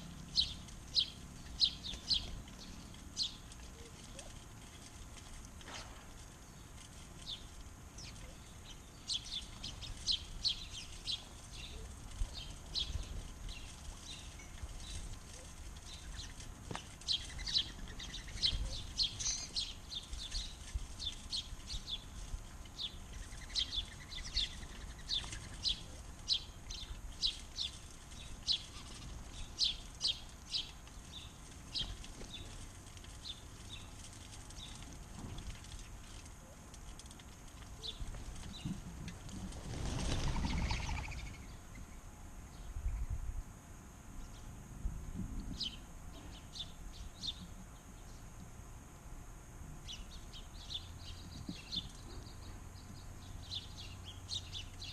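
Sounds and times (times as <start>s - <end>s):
birds chirping: 0.0s - 4.9s, 6.3s - 34.8s, 39.7s - 43.1s.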